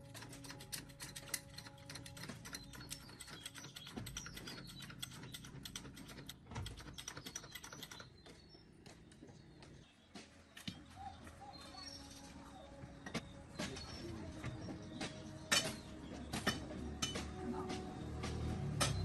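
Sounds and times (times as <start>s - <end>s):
rapid faint clicking and tapping: 0.0s - 8.6s.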